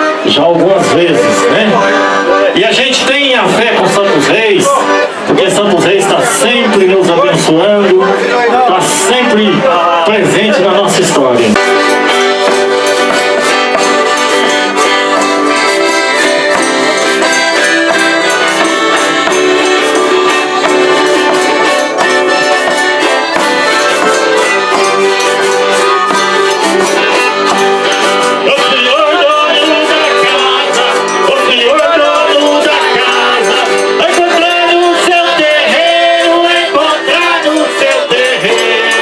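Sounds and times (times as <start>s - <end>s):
button accordion playing: 0.0s - 39.0s
shaken percussion rhythm: 10.1s - 39.0s.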